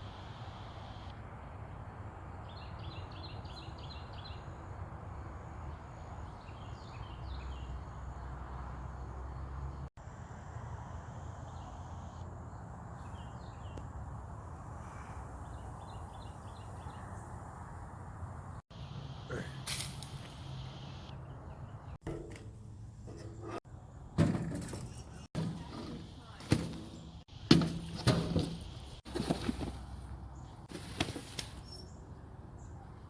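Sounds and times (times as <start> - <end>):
outdoor hiss: 0.0 - 1.1, 18.7 - 21.2
bird chirping: 31.6 - 33.0.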